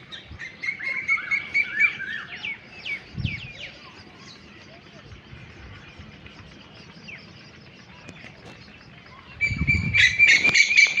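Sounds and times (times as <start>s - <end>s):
loud shrill bird call: 9.4s - 11.0s.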